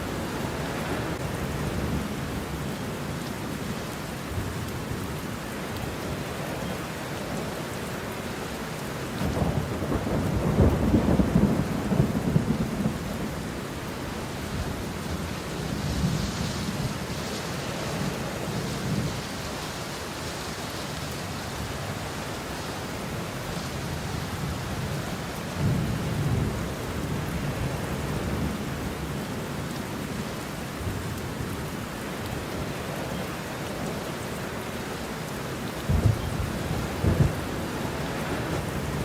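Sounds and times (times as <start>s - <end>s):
steady rain: 0.0s - 39.0s
thunder rumbling: 9.2s - 19.4s, 35.8s - 39.0s.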